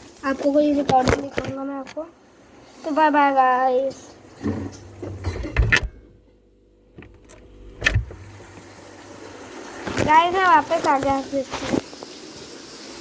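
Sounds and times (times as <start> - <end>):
steady low hum: 4.1 - 9.8
fridge door thud: 4.4 - 6.2, 6.9 - 8.7
phone handling knocks and rustles: 4.5 - 6.2, 7.0 - 8.4.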